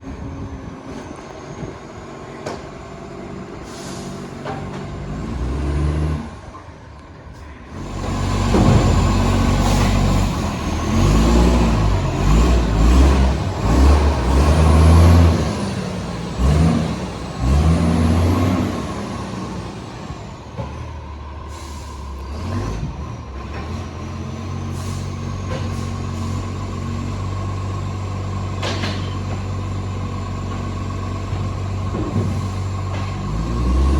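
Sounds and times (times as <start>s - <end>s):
air brake hiss: 3.6s - 4.4s, 21.4s - 22.2s, 24.7s - 26.4s
truck engine revving with exhaust leak: 7.7s - 33.9s.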